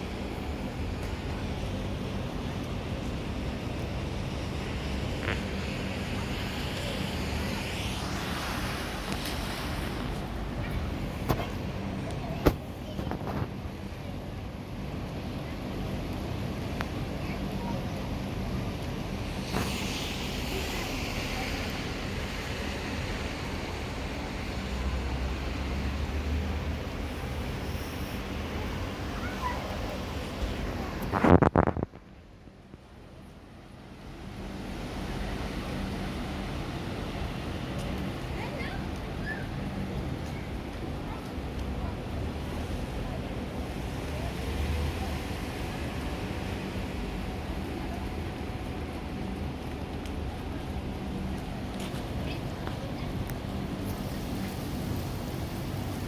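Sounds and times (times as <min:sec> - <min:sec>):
bright hiss: 0:04.4 - 0:11.8, 0:19.3 - 0:31.1.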